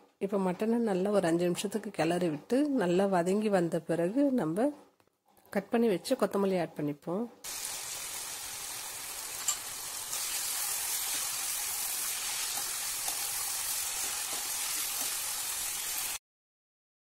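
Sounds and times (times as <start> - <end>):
meat sizzling in a pan: 7.4 - 16.2.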